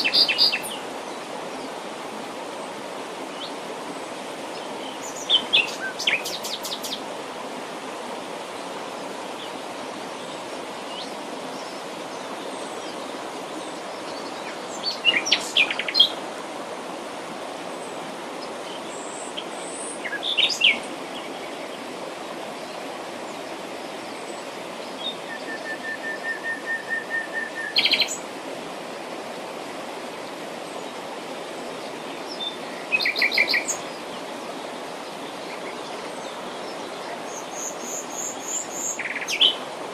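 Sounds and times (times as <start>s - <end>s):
birds singing and calling: 0.0s - 0.8s, 3.4s - 7.0s, 8.6s - 16.2s, 17.7s - 21.9s, 24.0s - 28.3s, 31.7s - 39.7s.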